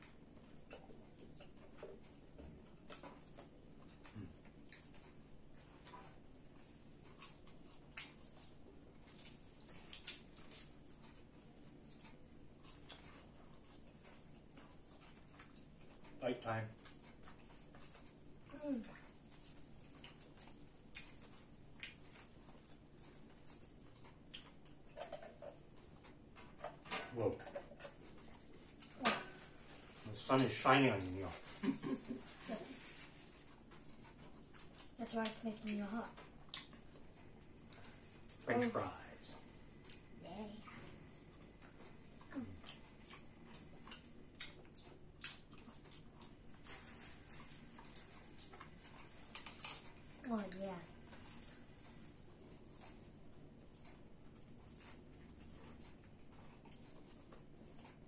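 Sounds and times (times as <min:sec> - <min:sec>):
chewing and mouth smacks: 0:00.0 - 0:29.0, 0:32.8 - 0:38.5, 0:39.5 - 0:50.2, 0:51.0 - 0:58.0.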